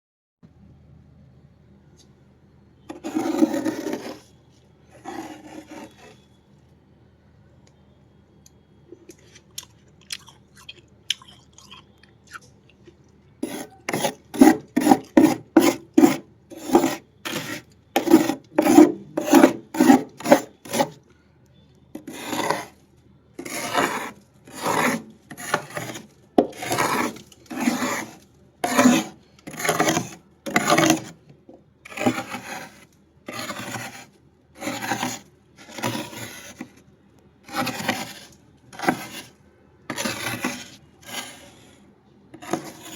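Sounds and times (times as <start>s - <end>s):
freezer frost being scraped: 2.9s - 6.3s, 13.4s - 21.0s, 21.9s - 22.8s, 23.4s - 41.8s, 42.4s - 42.9s.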